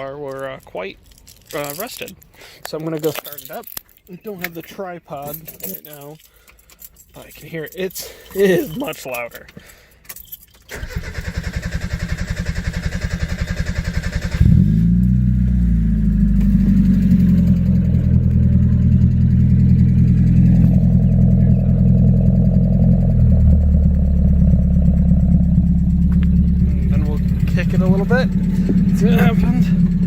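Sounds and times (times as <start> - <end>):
car engine cranking on starter: 10.6 - 18.2, 22.2 - 30.0
car engine idling: 10.7 - 30.0.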